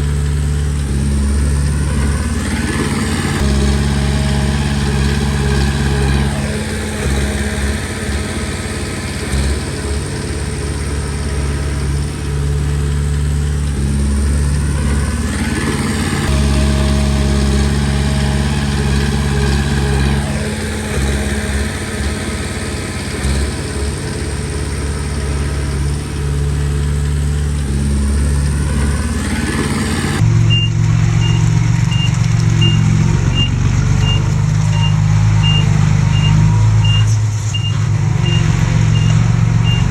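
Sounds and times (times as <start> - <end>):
bulldozer diesel engine running: 0.0 - 39.9
reversing alarm beeping: 30.5 - 39.9.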